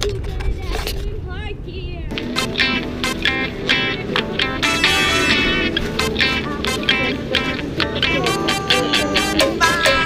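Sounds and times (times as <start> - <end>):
low steady rumble: 0.0 - 8.2
plucked guitar music: 2.1 - 10.0.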